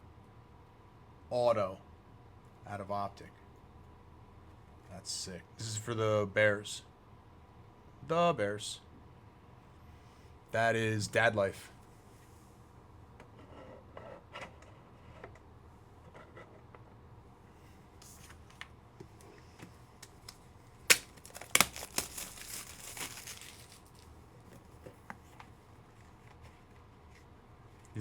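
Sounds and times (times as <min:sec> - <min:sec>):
sharp crackles: 0:20.0 - 0:24.1
card packaging crinkling and tearing: 0:20.0 - 0:24.9.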